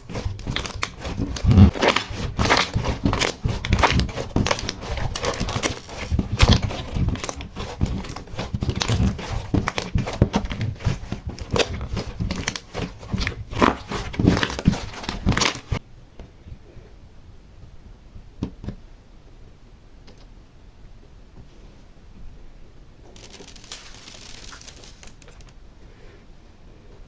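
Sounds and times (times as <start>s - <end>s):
slime crackling and popping: 0.0s - 15.8s, 23.1s - 25.6s.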